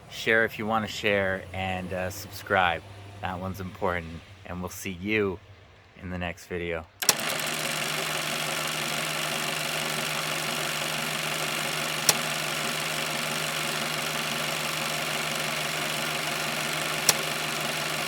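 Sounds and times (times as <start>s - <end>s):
engine idling: 7.0s - 18.0s
sharp click: 7.0s - 18.0s.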